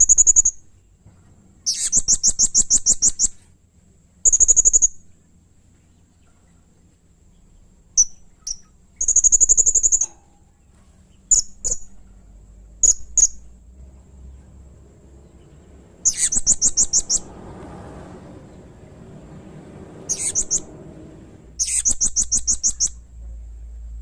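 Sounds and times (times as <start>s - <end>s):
parrot chirping and trilling: 0.0s - 0.7s, 1.6s - 3.4s, 4.2s - 5.1s, 8.0s - 10.5s, 11.3s - 12.0s, 12.8s - 13.6s, 15.1s - 23.1s.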